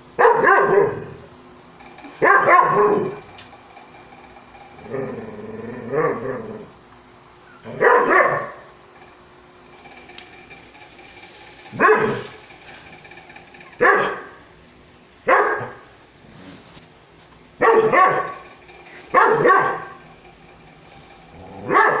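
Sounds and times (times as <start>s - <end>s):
dog barking: 0.2s - 1.2s, 2.2s - 3.2s, 7.7s - 8.7s, 11.8s - 12.3s, 13.8s - 14.4s, 15.3s - 15.9s, 17.6s - 18.4s, 19.1s - 19.9s, 21.6s - 22.0s.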